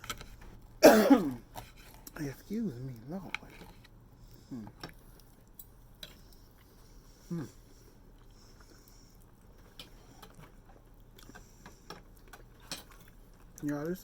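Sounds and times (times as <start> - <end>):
faint chewing: 0.0 - 14.0
person humming mm: 7.3 - 7.6.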